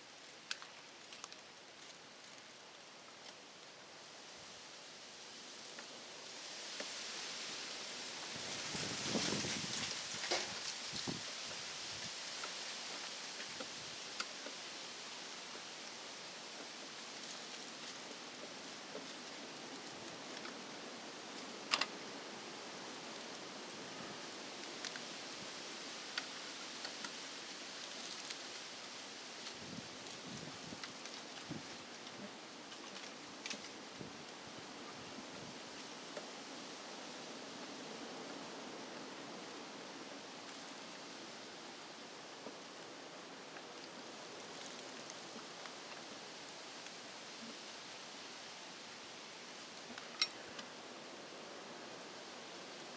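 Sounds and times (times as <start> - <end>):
steady hiss: 0.0 - 52.9
small tools clicking and tapping: 50.0 - 50.4.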